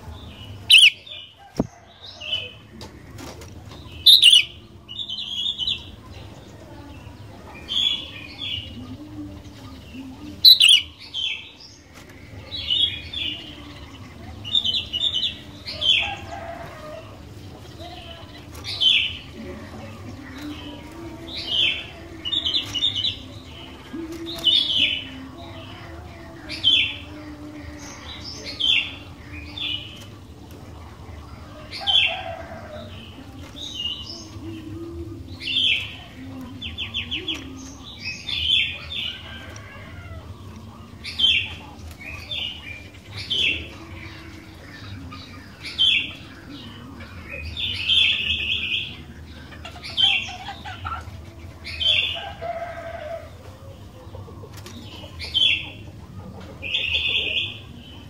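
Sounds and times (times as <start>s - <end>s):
bird singing whistled phrases: 4.1s - 4.5s.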